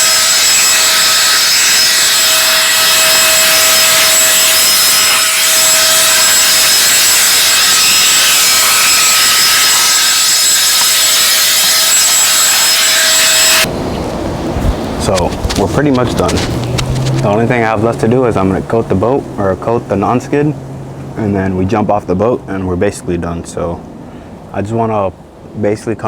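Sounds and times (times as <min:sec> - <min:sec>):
electric air blower rushing: 0:00.0 - 0:13.7.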